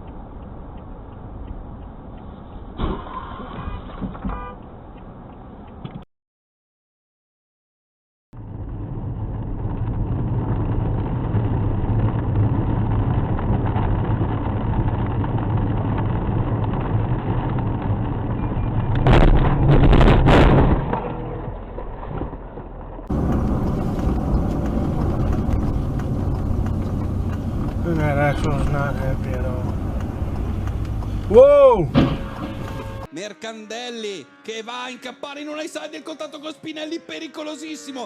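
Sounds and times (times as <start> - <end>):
another vehicle running: 8.4 - 33.1
loud clattering crash: 19.0 - 21.1, 31.9 - 32.7
vehicle engine running: 21.0 - 33.1.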